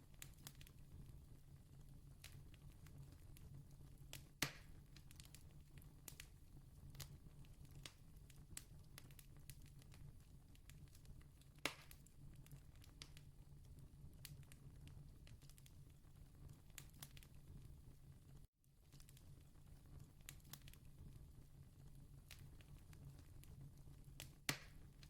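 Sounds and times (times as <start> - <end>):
faint campfire crackling: 0.0 - 25.0
loud fire pops: 24.2 - 25.0.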